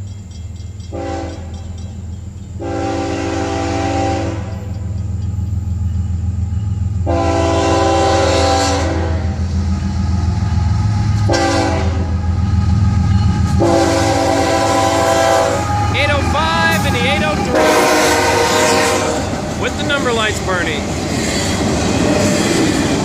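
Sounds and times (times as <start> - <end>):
locomotive horn blasts: 0.9 - 1.6, 2.6 - 4.7, 7.0 - 9.4, 11.2 - 12.4, 13.5 - 20.8
diesel engine rumbling: 9.2 - 23.0.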